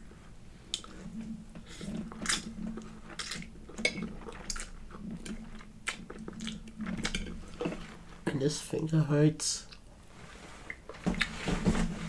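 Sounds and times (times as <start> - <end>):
low steady hum: 0.0 - 12.0
person chewing food: 0.2 - 8.3.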